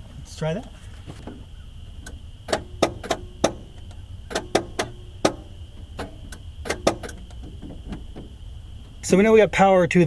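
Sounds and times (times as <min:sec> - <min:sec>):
starter solenoid clicking: 0:01.3 - 0:09.0.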